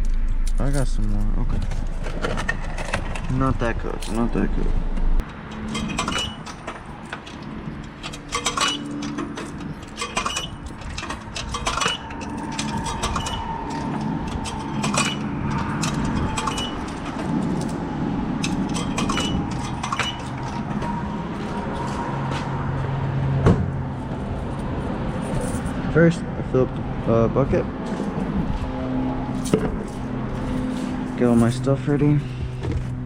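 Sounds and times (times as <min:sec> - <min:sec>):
coins clinking into slot: 0:05.5 - 0:17.2.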